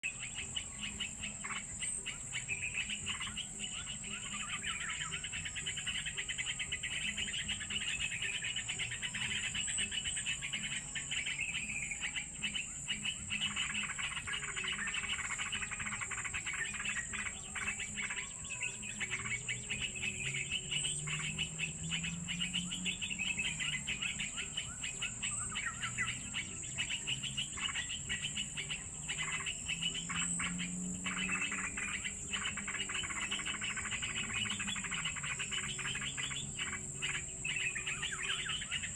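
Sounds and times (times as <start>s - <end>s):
birds chirping: 0.0s - 38.9s
high-pitched insect drone: 0.1s - 38.9s.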